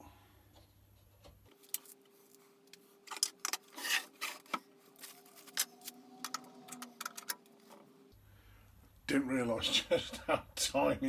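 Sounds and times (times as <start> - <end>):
faint steady hum: 0.0 - 11.0
metal scrape: 3.6 - 6.9.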